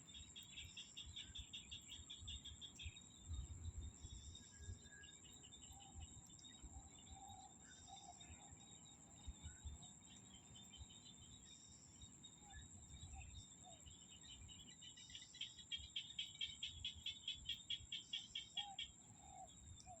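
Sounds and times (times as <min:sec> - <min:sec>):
frogs calling: 0:14.6 - 0:20.0.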